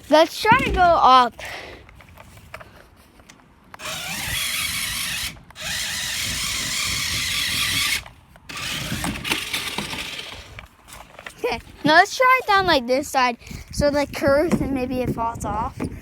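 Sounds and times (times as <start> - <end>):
toy car motor whirring: 3.8 - 10.7.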